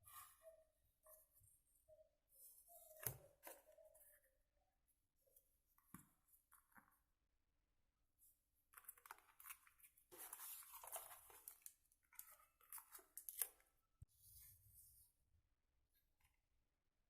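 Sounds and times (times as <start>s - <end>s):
rustling and crinkling handling noise: 8.6s - 15.1s.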